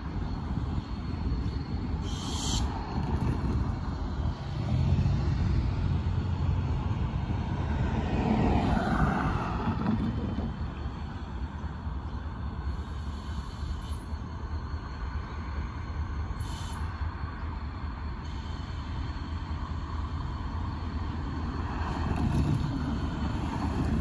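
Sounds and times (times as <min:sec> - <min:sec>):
diesel freight train rumbling: 0:00.0 - 0:24.0
road traffic: 0:00.0 - 0:24.0
car passing over crossing: 0:01.8 - 0:11.5, 0:19.5 - 0:24.0.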